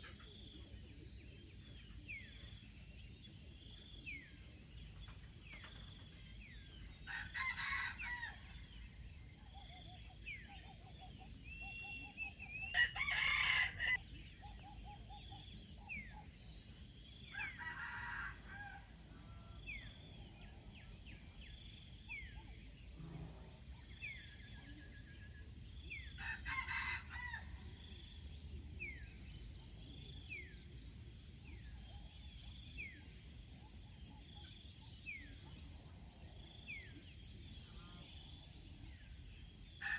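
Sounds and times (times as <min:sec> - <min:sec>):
rooster crowing: 0:12.8 - 0:14.0.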